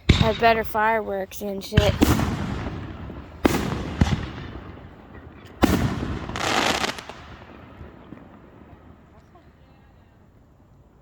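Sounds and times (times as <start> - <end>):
fireworks bangs: 0.0 - 10.3
fireworks crackle: 0.0 - 11.0.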